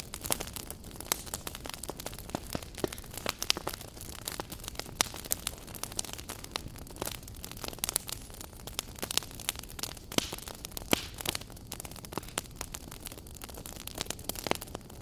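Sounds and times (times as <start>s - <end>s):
soft hiss of flames: 0.0s - 15.0s
wood fire crackling and popping: 0.0s - 15.0s.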